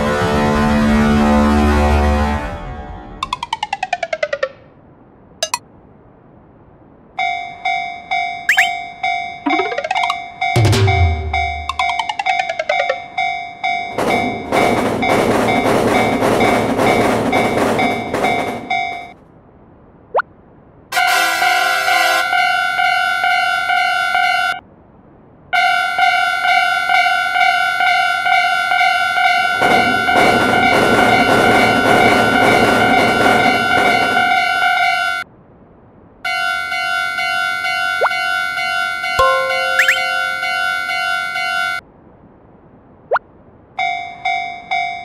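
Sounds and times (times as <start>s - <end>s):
train passing: 6.6s - 20.0s, 20.9s - 35.3s, 36.3s - 42.5s
railroad crossing bell dinging: 7.2s - 9.4s, 10.0s - 16.2s, 16.9s - 19.2s, 36.4s - 41.8s, 43.8s - 45.0s.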